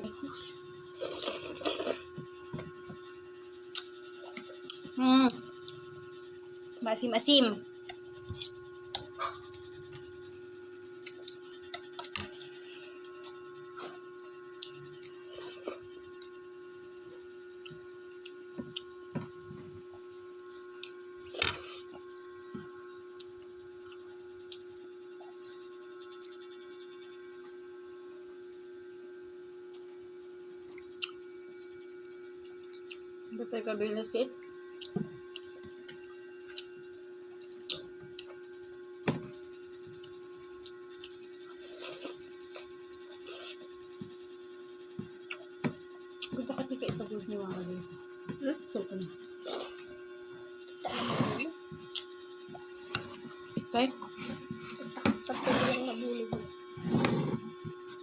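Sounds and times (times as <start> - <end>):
steady hum: 0.0 - 58.0
person chewing: 1.0 - 2.2, 7.9 - 10.1, 11.0 - 15.9, 30.7 - 31.2, 34.4 - 36.8, 40.0 - 43.6, 45.2 - 46.3, 49.4 - 50.0, 50.6 - 56.2
wet chewing and mouth clicks: 34.3 - 36.8.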